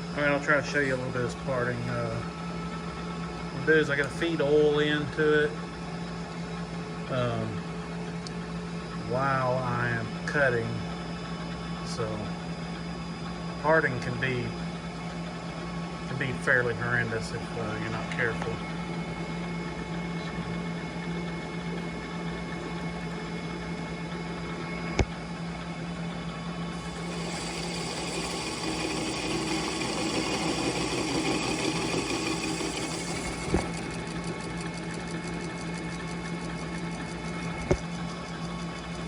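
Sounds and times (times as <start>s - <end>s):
lathe motor hum: 17.2s - 39.0s
lathe tool cutting metal: 26.7s - 37.4s.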